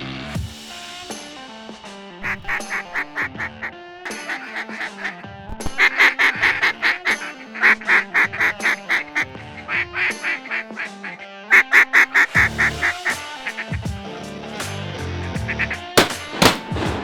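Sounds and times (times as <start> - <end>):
duck quacking: 2.2 - 13.6.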